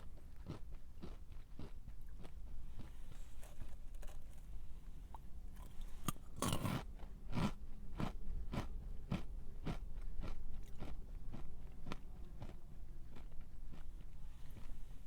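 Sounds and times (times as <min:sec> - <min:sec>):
person chewing crunchy snack: 0:00.3 - 0:14.8.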